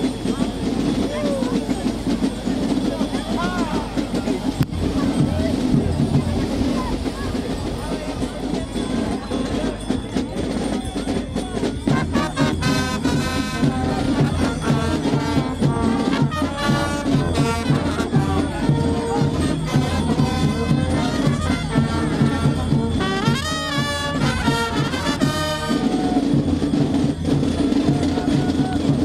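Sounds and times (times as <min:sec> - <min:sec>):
brass instruments playing: 0:11.9 - 0:26.2.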